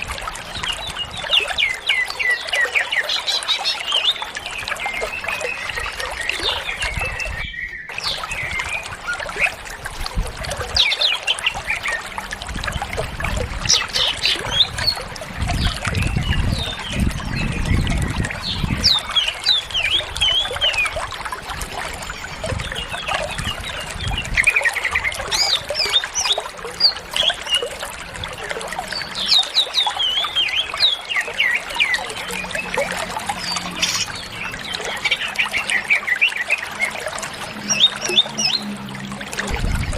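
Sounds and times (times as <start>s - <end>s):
water trickling: 0.0s - 39.9s
bird singing chirps and whistles: 0.6s - 9.5s.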